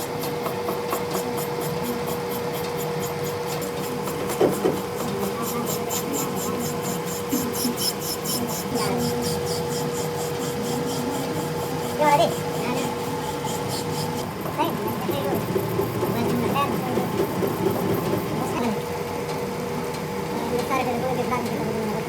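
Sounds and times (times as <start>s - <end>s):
metal being filed: 0.0s - 14.3s, 15.6s - 18.6s.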